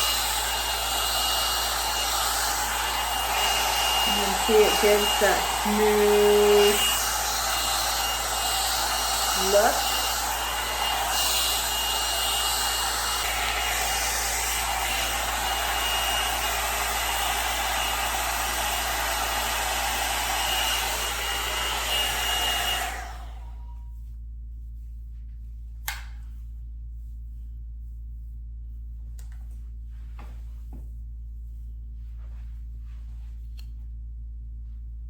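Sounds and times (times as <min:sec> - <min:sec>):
blow dryer brush running: 0:00.0 - 0:23.8.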